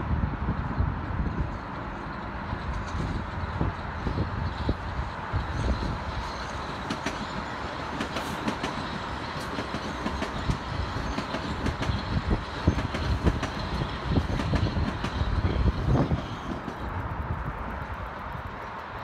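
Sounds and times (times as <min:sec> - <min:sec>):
train rumbling past: 0:00.0 - 0:19.0
wheels clacking over rail joints: 0:01.3 - 0:19.0.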